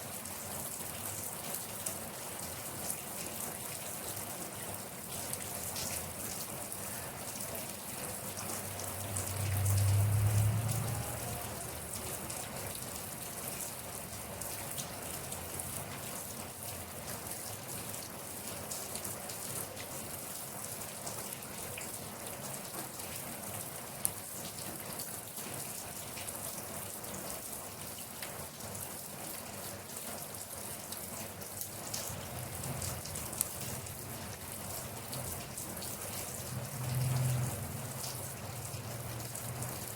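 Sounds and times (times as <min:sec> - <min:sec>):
rain falling: 0:00.0 - 0:39.9
water drip clicks: 0:08.4 - 0:11.0
low rumble: 0:08.8 - 0:11.7.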